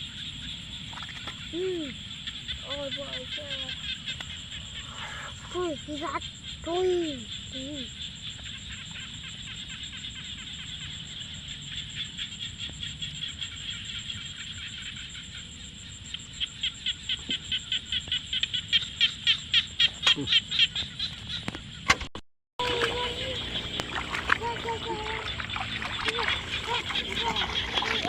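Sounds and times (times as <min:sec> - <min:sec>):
high-pitched chirring animal chorus: 0:00.5 - 0:08.1, 0:22.6 - 0:28.0
loud pulsing animal call: 0:22.6 - 0:28.0.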